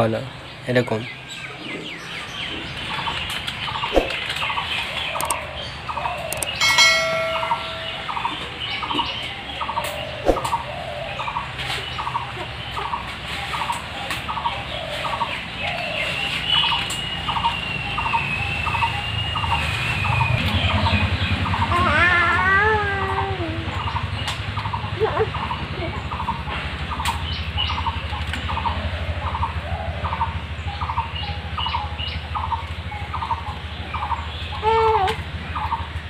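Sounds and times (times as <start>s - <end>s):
bird chirps: 0.4s - 21.8s.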